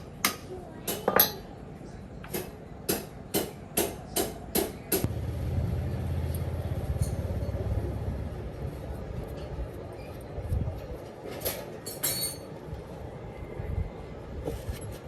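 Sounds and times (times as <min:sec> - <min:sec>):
low machine rumble: 0:05.1 - 0:10.8.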